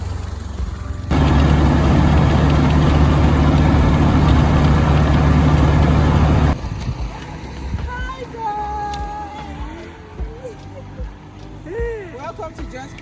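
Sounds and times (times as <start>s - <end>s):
vehicle engine humming: 1.1s - 6.8s.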